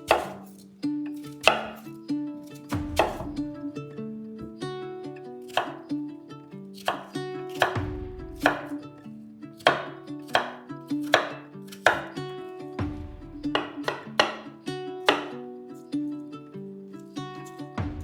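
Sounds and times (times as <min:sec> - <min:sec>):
knife chopping on cutting board: 0:00.0 - 0:00.6, 0:01.2 - 0:01.8, 0:02.7 - 0:03.4, 0:05.5 - 0:05.8, 0:06.8 - 0:07.8, 0:08.4 - 0:08.7, 0:09.6 - 0:12.2, 0:13.5 - 0:14.5, 0:15.1 - 0:15.4
plucked-string background music: 0:00.0 - 0:18.0.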